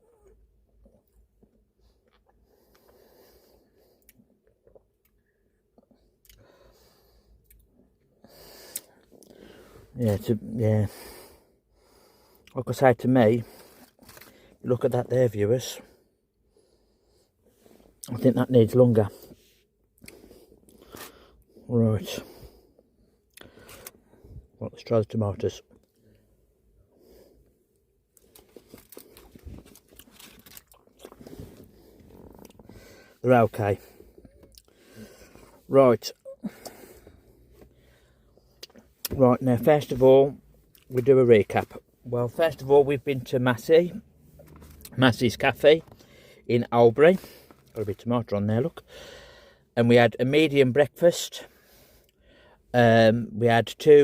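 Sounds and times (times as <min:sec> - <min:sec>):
person chewing: 0:28.2 - 0:32.7, 0:34.2 - 0:35.5.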